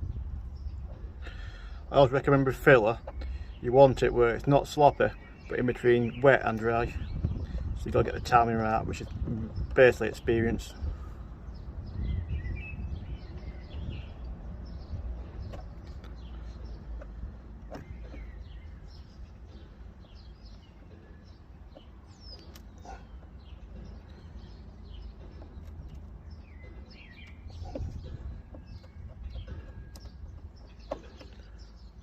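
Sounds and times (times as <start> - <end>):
small birds chirping: 0.0 - 32.0
steady low rumble: 0.0 - 32.0.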